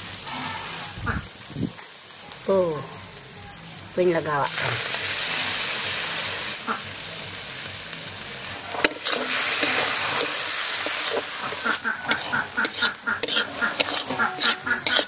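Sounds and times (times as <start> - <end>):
paste sizzling in hot oil: 0.0 - 2.3, 4.2 - 15.0
metal spatula clacking on pan: 8.8 - 15.0.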